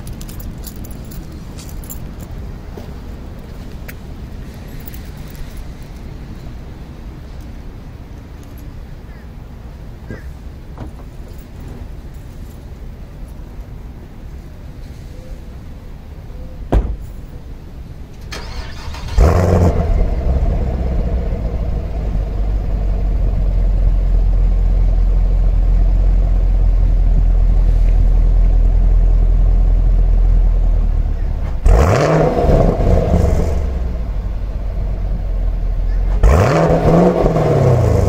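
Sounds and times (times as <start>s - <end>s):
car engine starting and idling: 16.4s - 38.0s
car door shutting: 16.7s - 17.2s
car engine revving: 18.4s - 23.4s, 31.4s - 35.0s, 36.0s - 38.0s.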